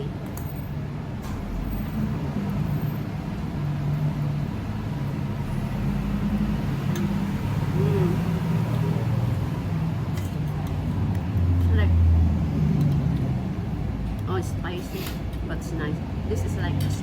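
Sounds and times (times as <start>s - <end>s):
engine rumbling: 0.0s - 17.0s.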